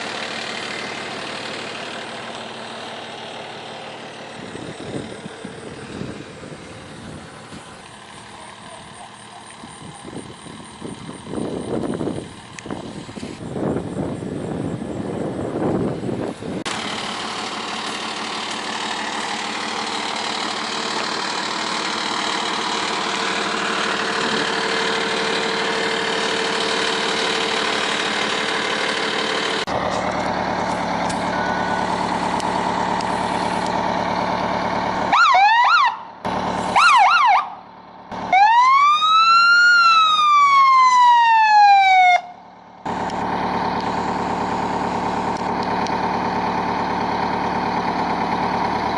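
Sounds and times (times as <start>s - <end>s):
engine running: 0.0s - 48.9s
fire truck siren: 35.0s - 46.0s.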